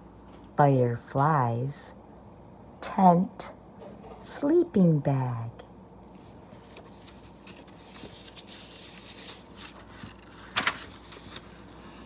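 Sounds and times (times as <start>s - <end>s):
paper book rustling: 6.1s - 12.0s.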